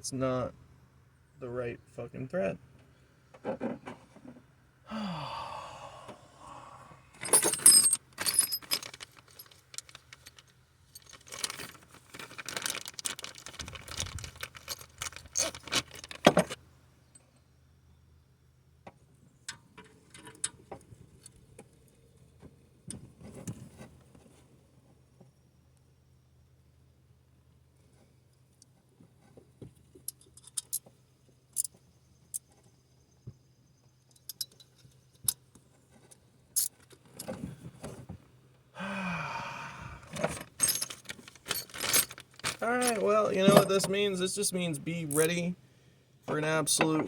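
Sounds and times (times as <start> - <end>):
metal tools clinking: 7.2 - 11.7, 13.9 - 16.2, 34.2 - 35.0, 36.6 - 37.3, 40.2 - 43.9.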